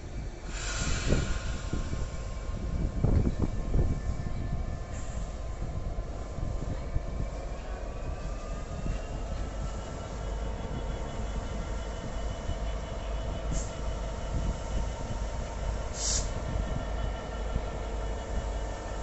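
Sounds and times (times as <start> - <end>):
train rumbling at platform: 0.0 - 19.0
short hisses: 0.5 - 2.2, 16.0 - 16.3.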